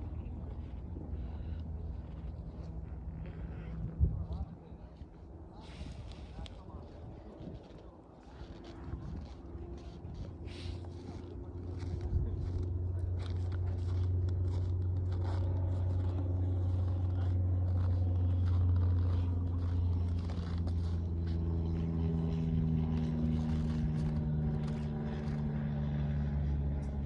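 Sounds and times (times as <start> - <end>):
faint scrapes and rustles: 0.0 - 27.0
vehicle engine running: 8.3 - 27.0.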